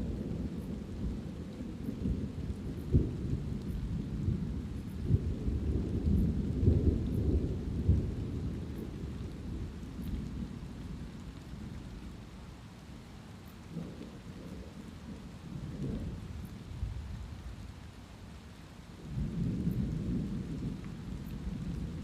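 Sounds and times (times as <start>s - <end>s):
rolling thunder: 0.0s - 10.5s
steady light rain: 0.0s - 22.0s.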